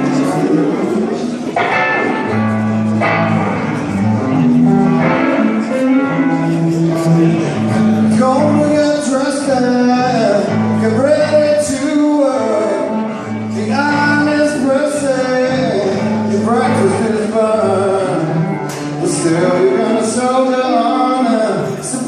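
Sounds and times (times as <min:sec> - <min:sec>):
guitar accompaniment: 0:00.0 - 0:22.0
man singing blues: 0:01.6 - 0:22.0.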